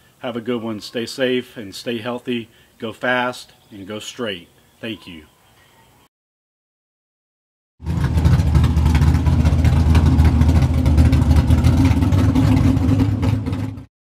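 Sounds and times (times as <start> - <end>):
loud car engine pulsing: 7.8 - 13.9.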